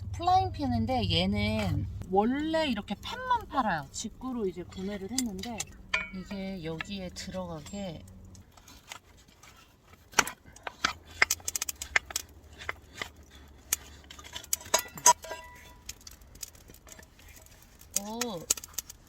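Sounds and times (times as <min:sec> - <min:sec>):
metal pan clinking and clacking: 0:04.7 - 0:06.9, 0:13.8 - 0:16.1.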